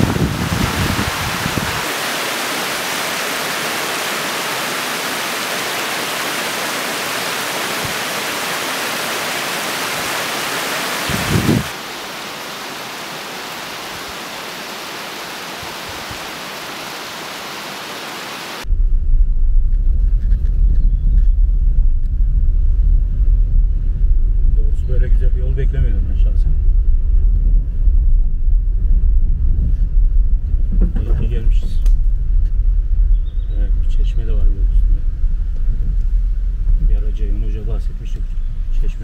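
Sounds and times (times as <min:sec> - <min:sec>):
stream water flowing: 0:00.1 - 0:18.7.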